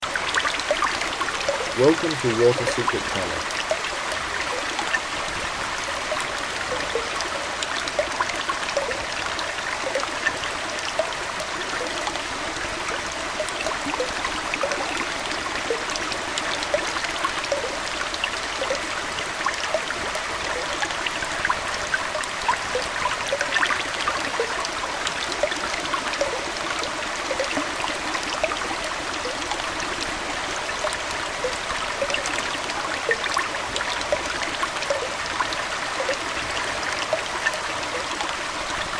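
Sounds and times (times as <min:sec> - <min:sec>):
aquarium water trickling: 0:00.1 - 0:38.9.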